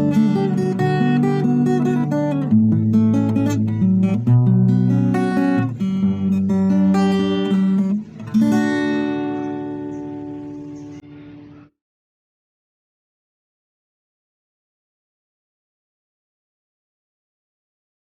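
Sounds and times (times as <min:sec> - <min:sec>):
acoustic guitar notes and chords: 0:00.0 - 0:11.8.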